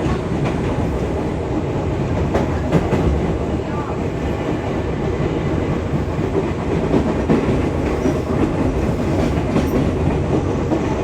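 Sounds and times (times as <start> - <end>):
clickety-clack of rails: 0.0 - 11.0
electric train running on track: 0.0 - 11.0.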